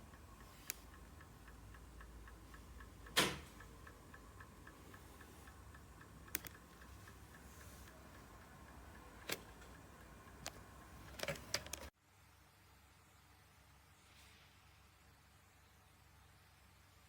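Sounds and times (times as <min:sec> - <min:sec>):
faint mechanical ticking: 0:00.0 - 0:12.0.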